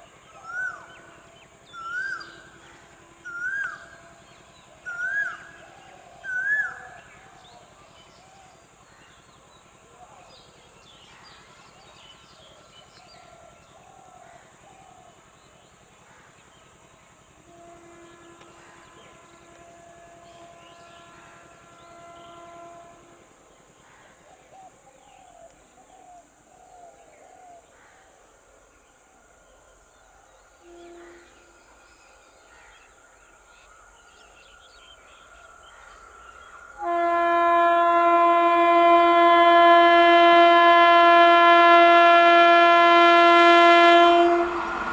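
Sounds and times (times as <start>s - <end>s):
faint train horn: 0.0s - 25.1s, 29.7s - 44.9s
loud locomotive horn: 0.4s - 7.5s, 17.2s - 23.6s, 30.6s - 31.8s, 36.8s - 44.9s.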